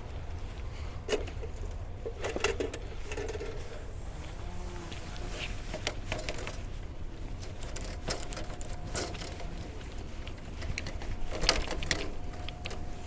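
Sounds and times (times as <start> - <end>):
cable knocking and clanking: 10.4 - 13.0.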